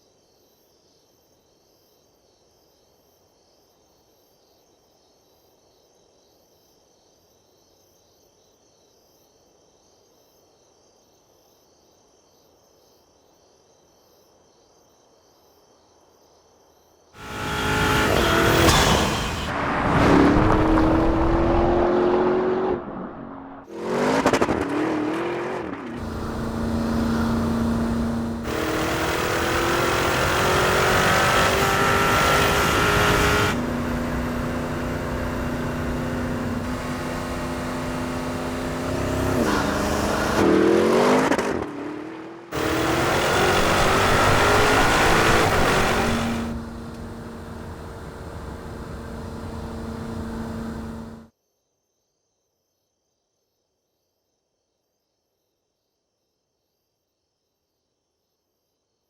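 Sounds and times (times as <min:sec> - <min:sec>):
car engine accelerating: 0:17.2 - 0:51.3
sharp engine revs: 0:17.2 - 0:51.3.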